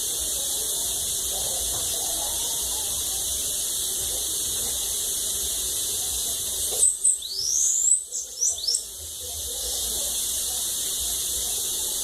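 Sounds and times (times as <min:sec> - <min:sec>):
steady high hiss: 0:00.0 - 0:12.0
songbird singing high thin notes: 0:06.6 - 0:09.0.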